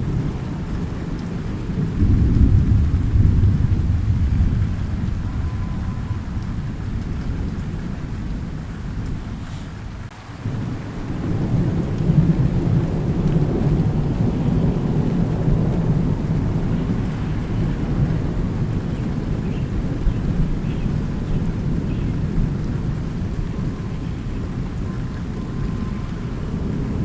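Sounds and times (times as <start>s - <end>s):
rolling thunder: 0.0s - 27.0s
steady rain: 0.0s - 27.0s.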